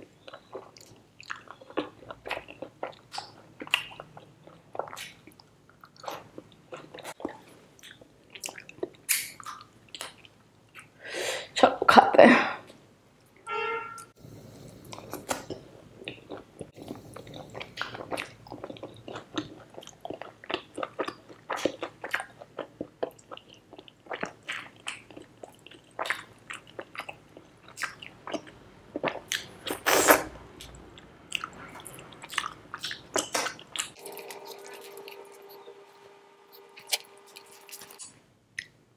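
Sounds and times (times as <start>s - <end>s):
chewing mouth clicks: 36.5s - 38.7s.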